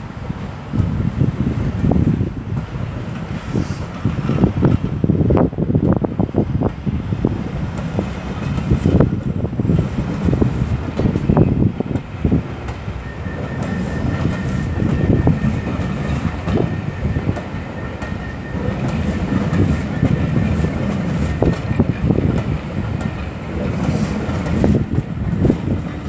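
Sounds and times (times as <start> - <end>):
steam train rumbling: 0.0 - 26.0
wheels clattering on rails: 7.5 - 26.0.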